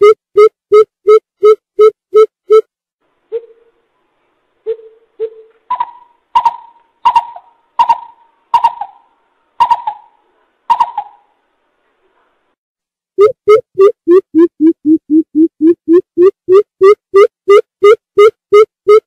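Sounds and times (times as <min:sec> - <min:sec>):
bird hooting: 0:03.3 - 0:03.8, 0:04.7 - 0:11.3.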